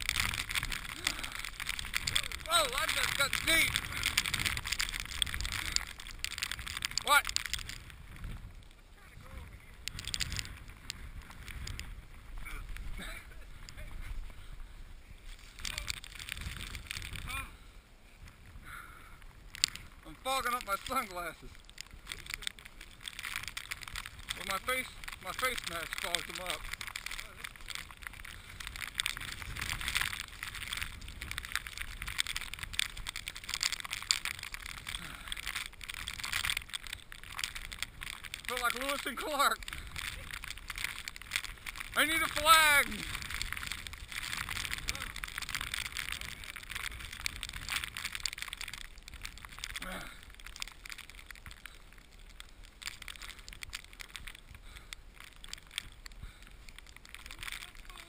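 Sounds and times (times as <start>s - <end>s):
wind rumbling on microphone: 0.0s - 58.0s
footsteps crunching in snow: 19.8s - 50.1s.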